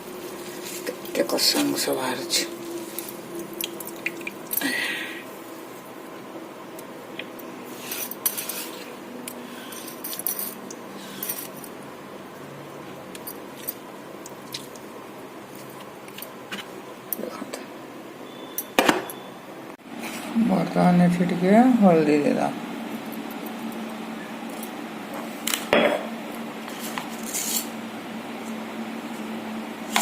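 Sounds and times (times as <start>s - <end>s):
utensils clinking on bowl: 9.7s - 11.8s.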